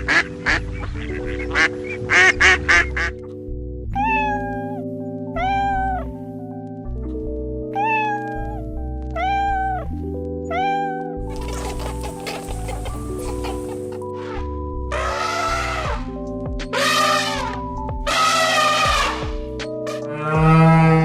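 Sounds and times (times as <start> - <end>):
background music: 0.0 - 21.0
duck quacking: 1.3 - 3.1, 11.3 - 14.0, 16.8 - 19.2.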